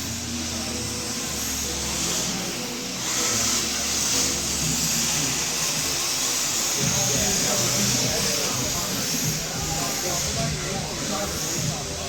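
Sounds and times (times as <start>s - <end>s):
radio-controlled cars running: 0.0s - 12.0s.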